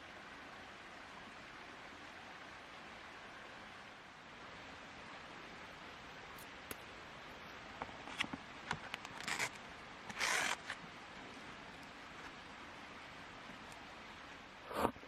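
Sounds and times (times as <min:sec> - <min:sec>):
faint background hiss: 0:00.0 - 0:15.0
short rasping strokes: 0:10.1 - 0:10.8.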